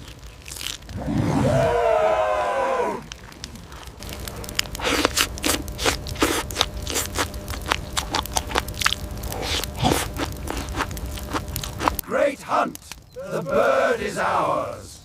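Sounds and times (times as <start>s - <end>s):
crunching and scraping: 0.0s - 1.8s, 3.0s - 12.1s
sharp cracks: 0.0s - 12.1s.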